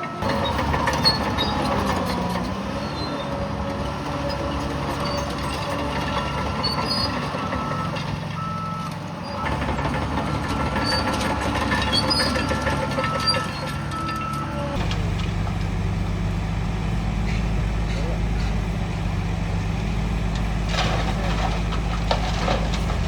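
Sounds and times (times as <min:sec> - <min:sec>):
heavy diesel machinery running: 0:00.0 - 0:23.0
reversing alarm beeping: 0:06.2 - 0:09.8, 0:12.0 - 0:14.8.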